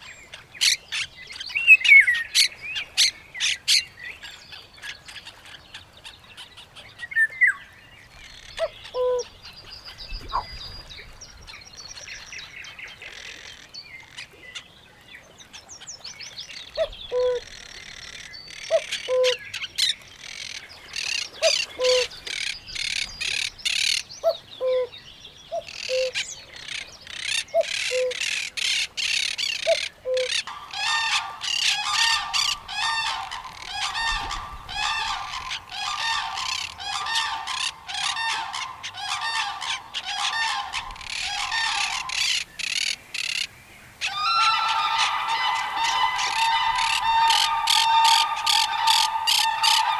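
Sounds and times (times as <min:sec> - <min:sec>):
birds chirping and calling: 0:00.0 - 0:14.8, 0:15.4 - 0:49.9
harsh honking calls: 0:30.5 - 0:42.3, 0:44.1 - 0:49.9.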